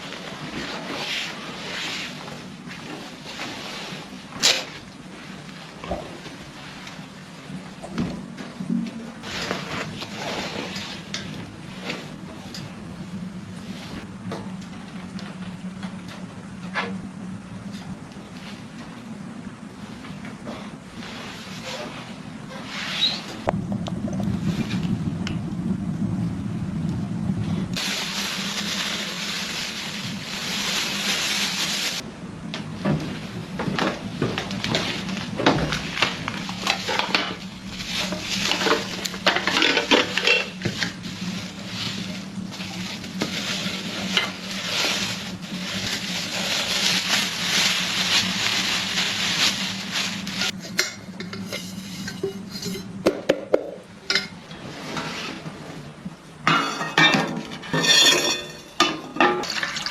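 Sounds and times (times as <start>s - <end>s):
low rumble: 23.5s - 50.6s
utensil stirring and scraping: 36.5s - 53.0s.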